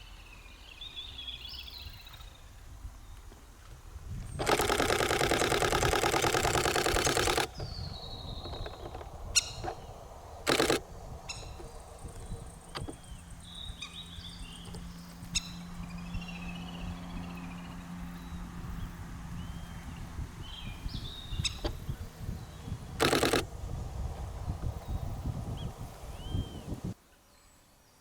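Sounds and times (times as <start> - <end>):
camera shutter burst: 4.4 - 9.8, 10.4 - 11.6, 23.0 - 23.5
faint bird calls: 4.4 - 27.4.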